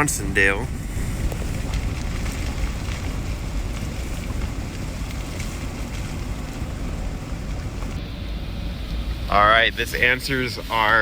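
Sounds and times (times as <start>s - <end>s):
wind noise: 0.0s - 9.3s
tyres and engine rumbling: 0.0s - 11.0s.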